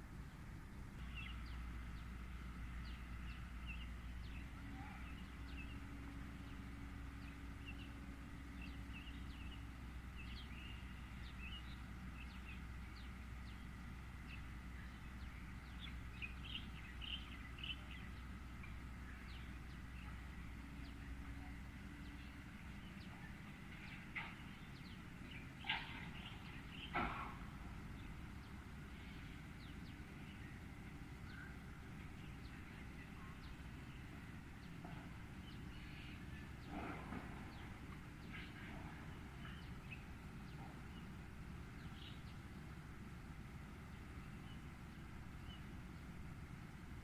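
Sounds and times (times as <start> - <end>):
steady low hum: 0.0 - 47.0
sunbird chirping: 8.6 - 18.4.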